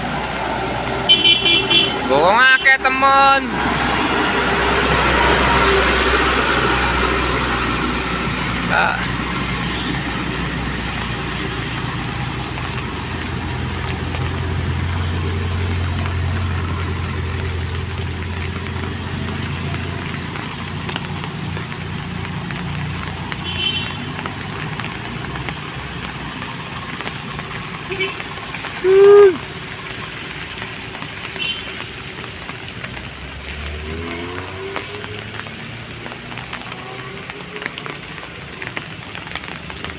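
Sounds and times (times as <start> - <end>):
truck engine passing by: 0.0 - 23.4.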